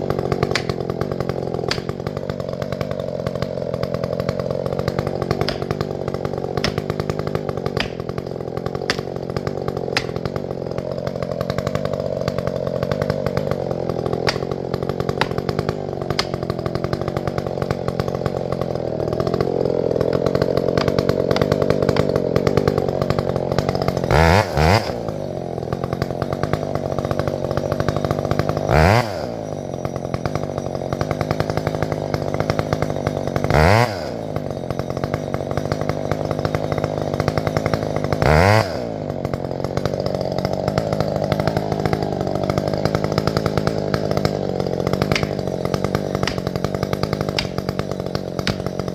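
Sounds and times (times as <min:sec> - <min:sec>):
chainsaw running and revving: 0:00.0 - 0:48.9.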